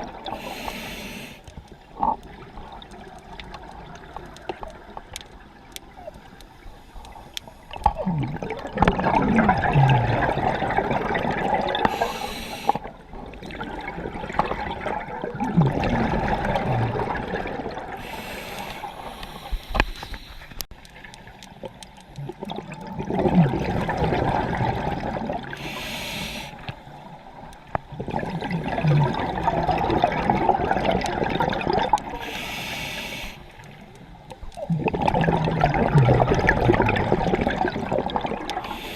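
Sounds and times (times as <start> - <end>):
regulator inhale hiss: 0.3 - 1.5, 11.8 - 12.9, 18.0 - 20.6, 25.5 - 27.0, 32.2 - 33.7, 38.6 - 38.9
bubbles gushing underwater: 7.7 - 12.2, 12.8 - 18.1, 22.2 - 25.6, 27.4 - 32.3, 34.4 - 38.9.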